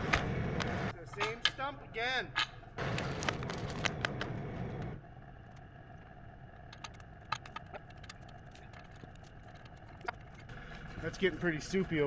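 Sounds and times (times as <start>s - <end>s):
tractor engine working: 6.5s - 12.0s.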